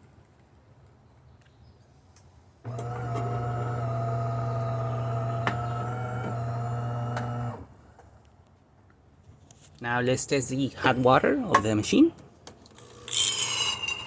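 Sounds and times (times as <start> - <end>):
espresso machine humming: 2.7 - 7.6.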